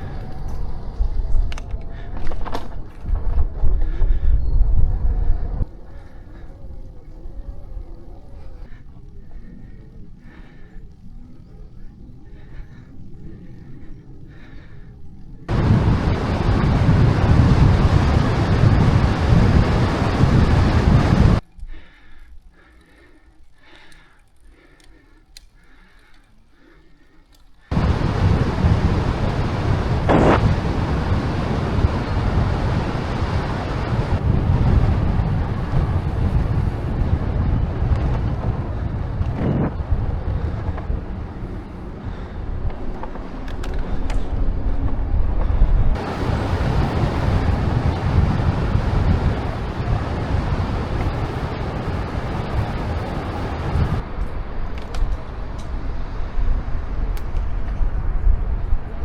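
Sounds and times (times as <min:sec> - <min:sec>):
wind buffeting microphone: 0:00.0 - 0:22.0, 0:27.6 - 0:59.0.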